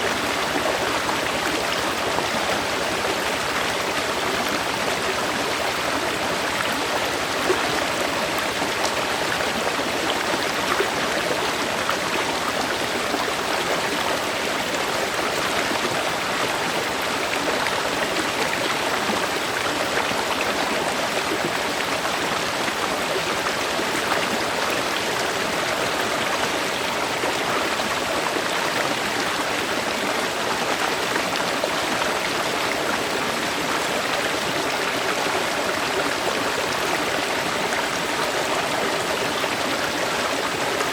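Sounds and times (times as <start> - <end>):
river water flowing over rocks: 0.0 - 40.9.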